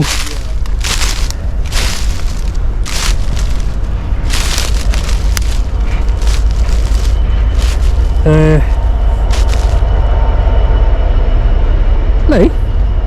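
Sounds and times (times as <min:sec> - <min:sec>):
short rustling noises: 0:00.0 - 0:09.8
freight train rumbling past: 0:00.0 - 0:13.0.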